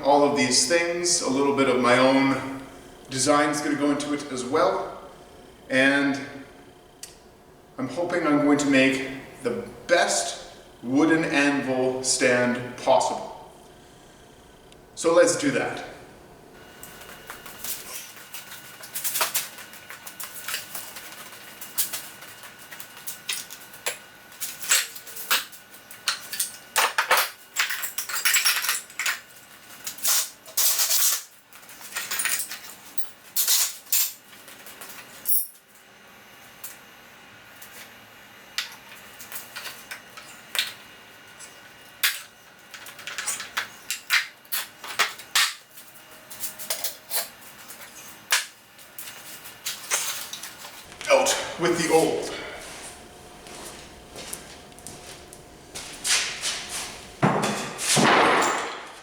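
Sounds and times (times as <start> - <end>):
metal parts clinking: 23.0 - 35.7.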